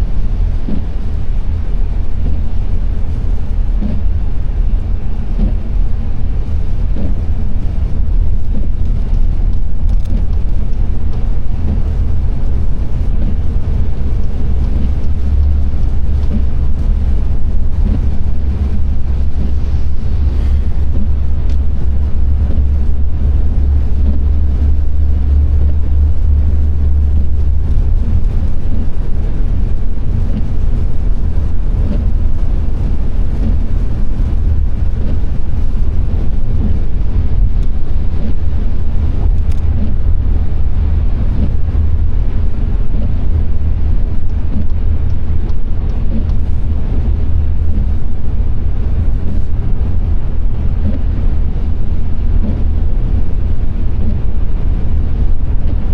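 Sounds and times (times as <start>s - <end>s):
car engine and road noise: 0.0s - 55.9s.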